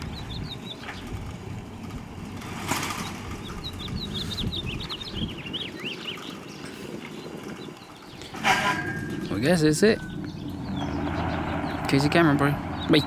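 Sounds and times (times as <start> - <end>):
steady low rumble: 0.0 - 6.8, 7.5 - 13.0
small bird twittering: 2.8 - 13.0.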